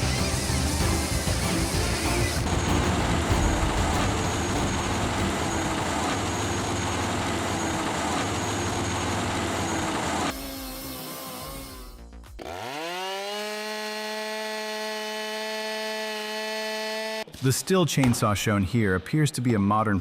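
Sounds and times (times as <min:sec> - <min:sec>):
large machine running under load: 0:00.0 - 0:10.4.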